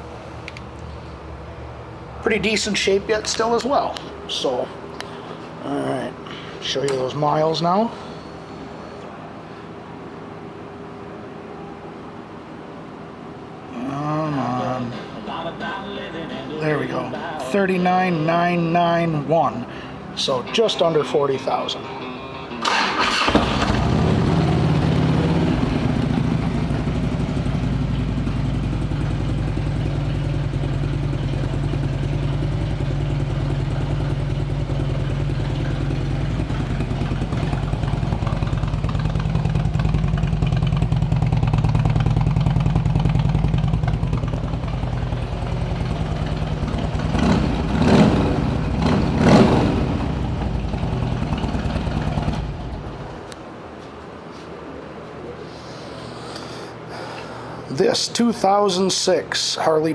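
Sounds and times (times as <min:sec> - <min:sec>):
motorcycle engine blipped: 0:22.6 - 0:53.3
motorcycle engine idling: 0:22.7 - 0:53.3.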